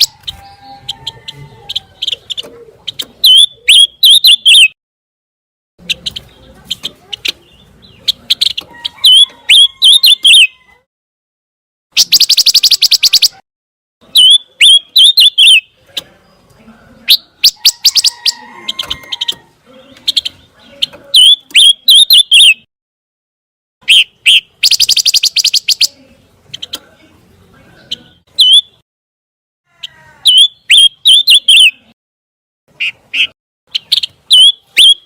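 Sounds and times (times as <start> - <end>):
bird song with sharp high chirps: 0.0 - 4.8, 5.8 - 10.7, 12.0 - 13.4, 14.0 - 22.7, 23.8 - 27.0, 27.7 - 28.8, 30.3 - 32.0, 32.7 - 35.0.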